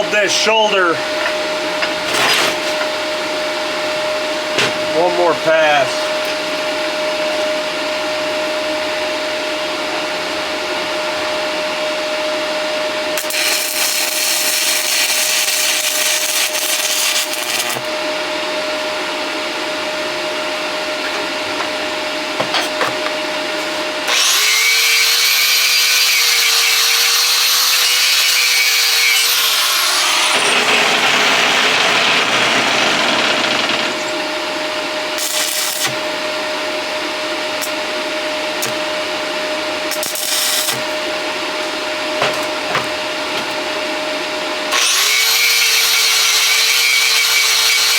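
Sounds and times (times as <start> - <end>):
welding arc crackling and hissing: 13.2 - 18.0, 35.2 - 36.2, 37.6 - 37.9, 38.6 - 39.0, 39.9 - 41.7.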